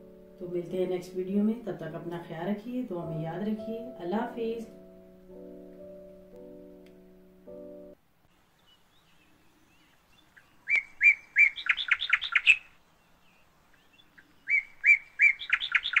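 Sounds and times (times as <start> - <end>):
bird singing: 8.3 - 16.0.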